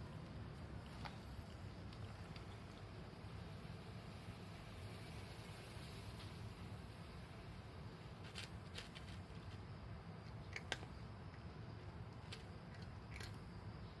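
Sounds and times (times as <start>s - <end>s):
low background rumble: 0.0s - 14.0s
cat chewing dry food: 8.2s - 13.6s.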